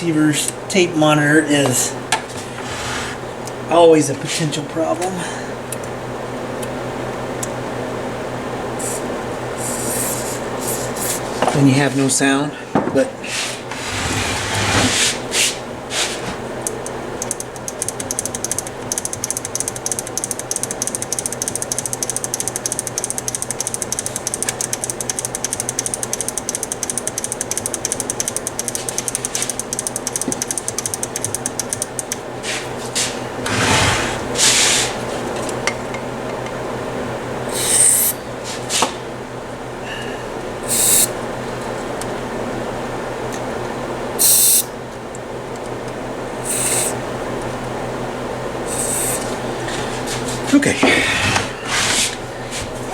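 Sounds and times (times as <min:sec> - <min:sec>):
switches clicking rapidly: 0:16.6 - 0:32.3
contact cleaner spray hissing: 0:37.5 - 0:38.1, 0:40.7 - 0:41.1, 0:44.2 - 0:44.7, 0:46.4 - 0:47.0, 0:48.7 - 0:49.3.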